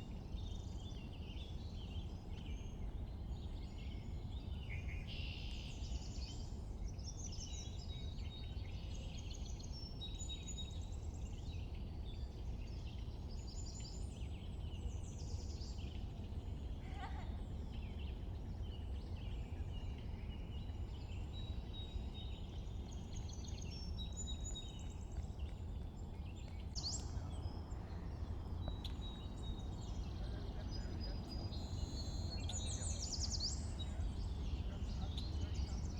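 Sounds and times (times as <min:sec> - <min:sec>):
low background rumble: 0:22.0 - 0:35.9
birds chirping and trilling: 0:26.7 - 0:35.9.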